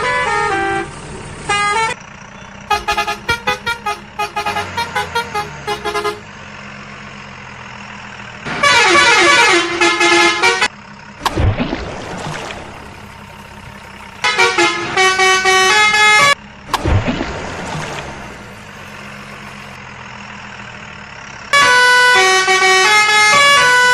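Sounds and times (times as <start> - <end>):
cartoon vehicle horns honking: 0.0 - 6.3, 8.4 - 10.7, 14.1 - 16.4, 21.5 - 23.9
engine drone: 0.0 - 23.9.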